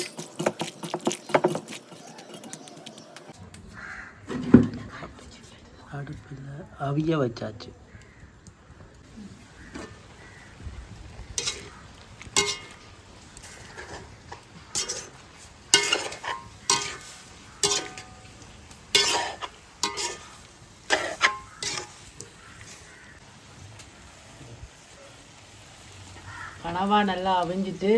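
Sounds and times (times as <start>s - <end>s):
metal spoon scraping a pot: 0.0s - 3.1s, 11.4s - 22.9s.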